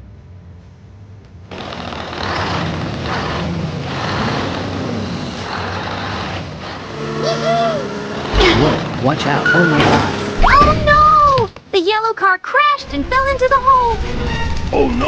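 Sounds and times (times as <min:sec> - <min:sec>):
vehicle motor surging: 0:01.4 - 0:11.5.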